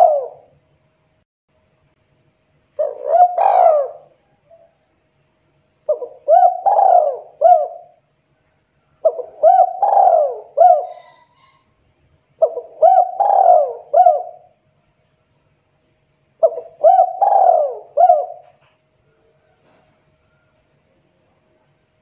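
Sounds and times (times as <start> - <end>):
dove cooing: 0.0 - 0.5, 2.7 - 4.8, 5.9 - 8.0, 9.0 - 11.7, 12.4 - 14.6, 16.4 - 18.7.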